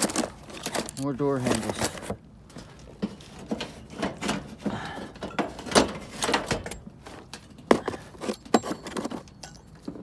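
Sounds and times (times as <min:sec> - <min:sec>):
metal door hardware clanking: 0:05.2 - 0:06.9.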